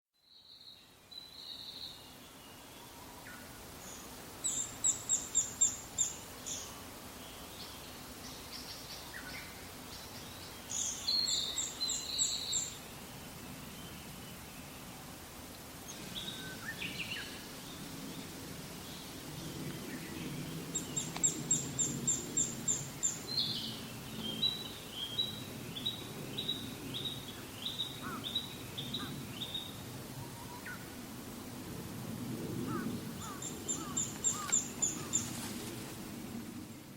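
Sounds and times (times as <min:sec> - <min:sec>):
woodpecker calling: 0:27.8 - 0:29.1, 0:32.7 - 0:35.3.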